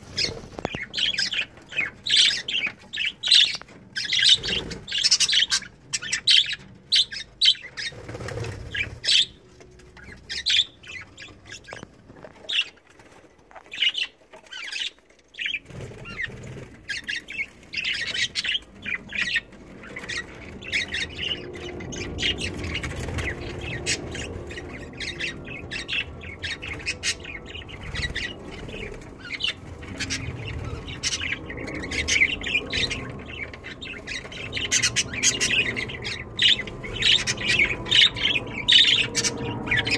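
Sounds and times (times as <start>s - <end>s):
budgerigars chirping and squawking: 0.0s - 39.9s
wings flapping: 7.8s - 9.2s, 15.5s - 17.0s.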